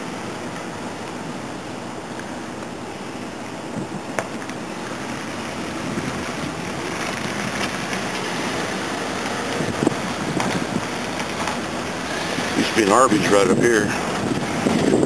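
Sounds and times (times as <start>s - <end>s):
road and engine noise inside car: 0.0s - 15.0s.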